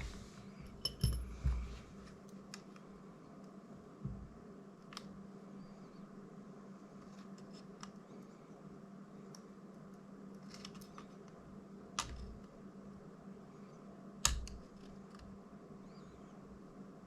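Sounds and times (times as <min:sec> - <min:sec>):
steady low hum: 0:00.0 - 0:17.0
light clicks of parts: 0:06.9 - 0:08.5, 0:09.2 - 0:11.4.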